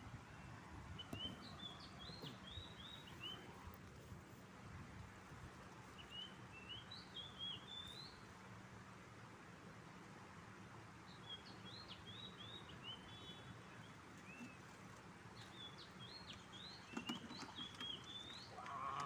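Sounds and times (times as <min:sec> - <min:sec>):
faint background hiss: 0:00.0 - 0:19.0
small bird chirping: 0:01.0 - 0:03.5, 0:15.4 - 0:19.0.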